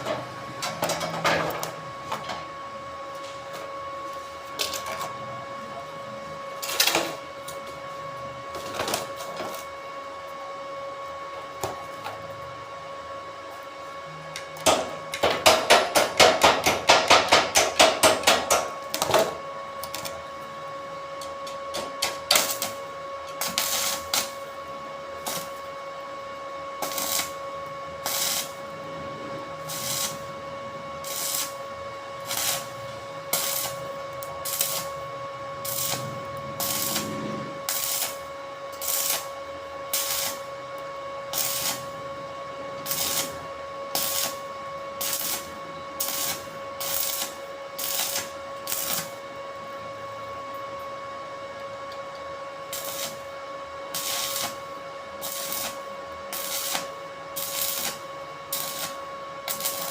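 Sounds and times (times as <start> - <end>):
machine hum: 0.0 - 59.9.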